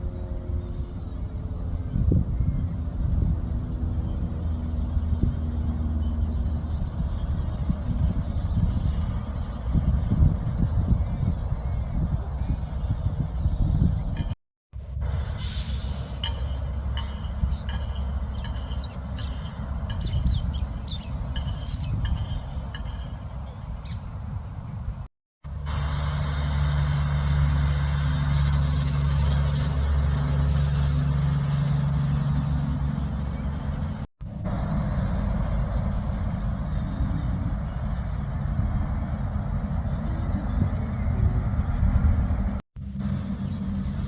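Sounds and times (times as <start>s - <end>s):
road traffic rumble: 0.0s - 44.0s
birds chirping: 16.2s - 25.0s, 32.0s - 42.0s.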